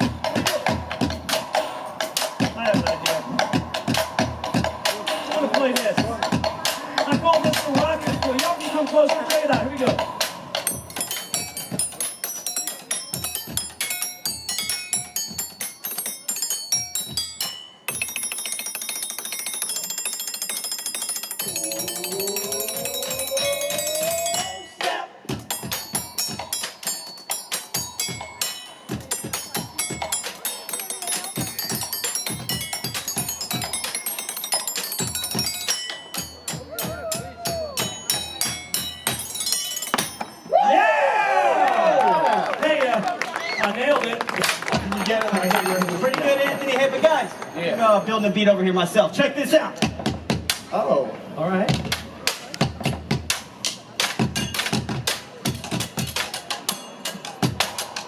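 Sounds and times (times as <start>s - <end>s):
metallic percussion hits: 0.0s - 40.5s
quick ringing notes: 10.6s - 40.5s.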